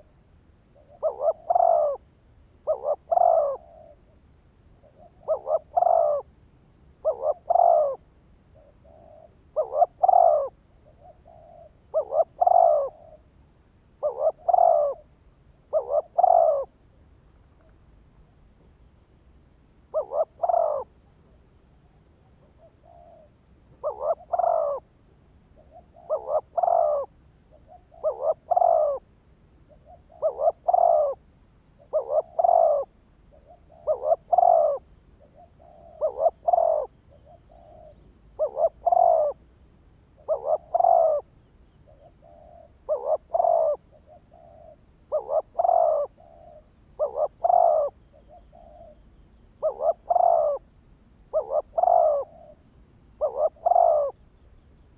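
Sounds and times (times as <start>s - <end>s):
dove cooing: 0.7s - 6.4s, 7.0s - 13.4s, 14.0s - 18.9s, 19.8s - 54.6s.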